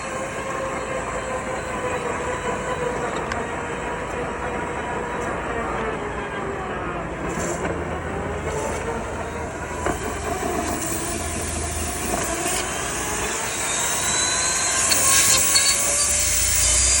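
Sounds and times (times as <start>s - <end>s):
faint wavering whine: 0.0s - 17.0s
steady motor noise: 0.0s - 17.0s.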